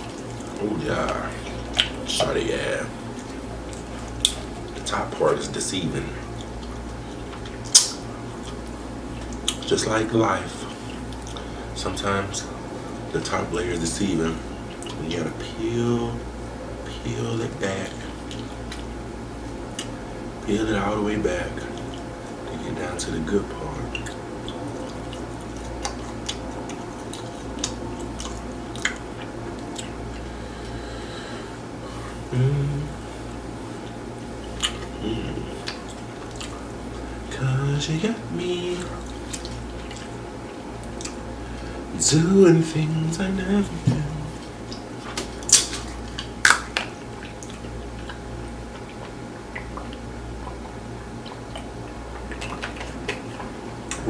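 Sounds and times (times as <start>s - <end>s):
chewing chicken: 0.0s - 4.9s, 6.0s - 11.7s, 12.4s - 54.0s
low room hum: 0.0s - 54.0s
wet mouth clicks: 7.3s - 8.6s, 44.7s - 54.0s.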